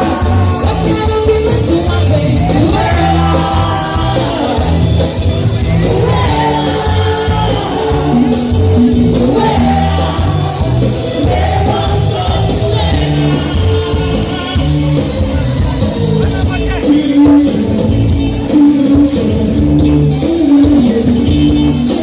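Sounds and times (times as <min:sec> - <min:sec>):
loud carnival music with singing: 0:00.0 - 0:22.0
people shouting: 0:02.4 - 0:05.0.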